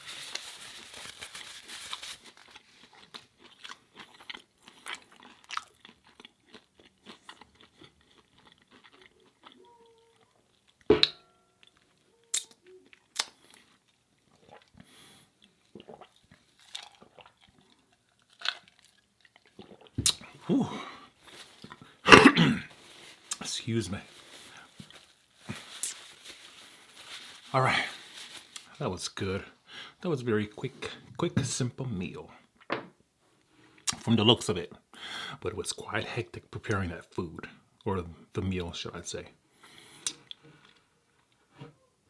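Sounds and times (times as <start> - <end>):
chewing and crunching food: 0.0 - 10.9, 11.5 - 22.0
wet mouth clicks: 12.3 - 13.4.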